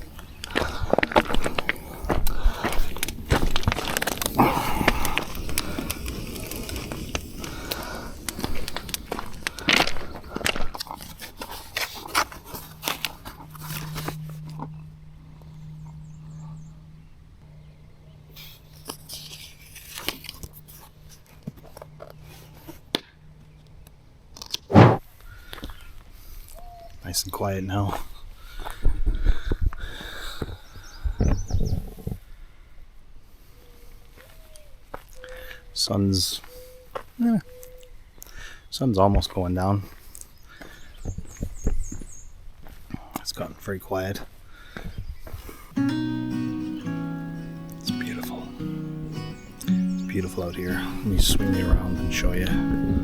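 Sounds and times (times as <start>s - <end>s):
clicking and crackling: 0.4s - 14.2s.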